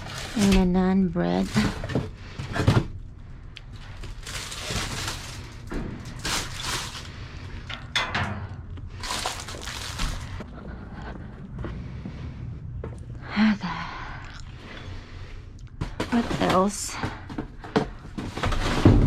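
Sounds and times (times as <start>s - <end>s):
bags rustling: 0.0s - 2.5s, 3.7s - 7.5s, 9.0s - 10.5s.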